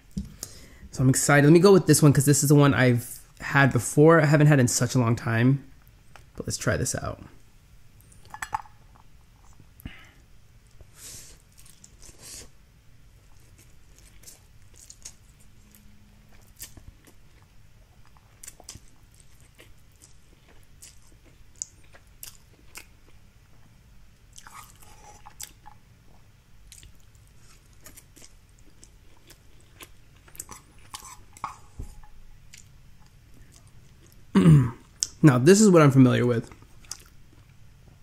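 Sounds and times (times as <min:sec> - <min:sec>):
person chewing noodles: 0:09.4 - 0:12.6, 0:13.2 - 0:35.2, 0:36.4 - 0:37.6.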